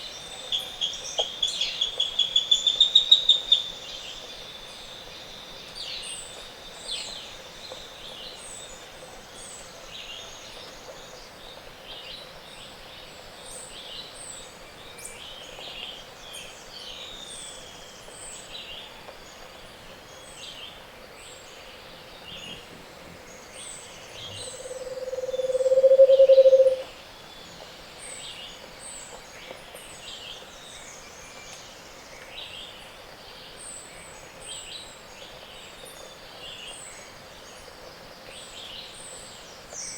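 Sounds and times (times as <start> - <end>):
bird low song: 20.1 - 37.6
birds chirping and calling: 24.0 - 26.8.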